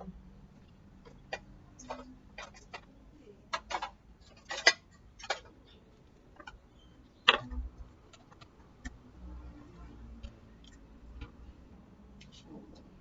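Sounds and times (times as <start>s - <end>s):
small tools clicking and tapping: 3.5s - 6.6s.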